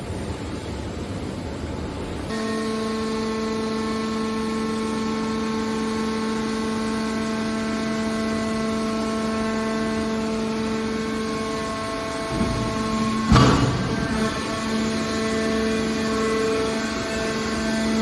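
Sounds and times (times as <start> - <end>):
machine hum with whine: 0.0 - 18.0.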